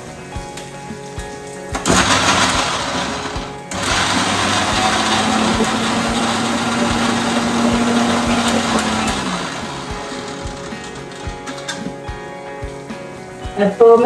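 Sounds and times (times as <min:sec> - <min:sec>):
electric mixer grinder whining: 0:01.8 - 0:12.0.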